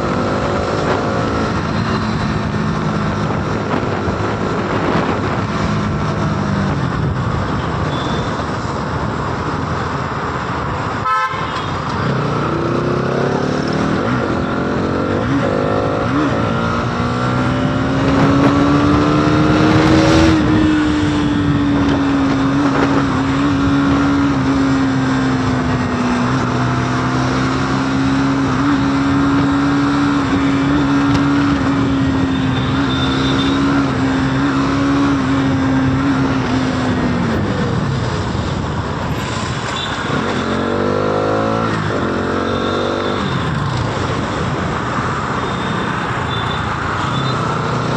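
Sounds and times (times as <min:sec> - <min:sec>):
wind noise rushing: 0:00.0 - 0:11.0, 0:11.9 - 0:32.7
motorcycle engine accelerating: 0:11.9 - 0:47.9.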